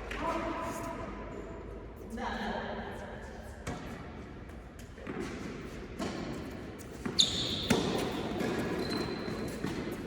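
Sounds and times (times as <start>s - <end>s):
high shoe squeak: 7.0s - 9.8s.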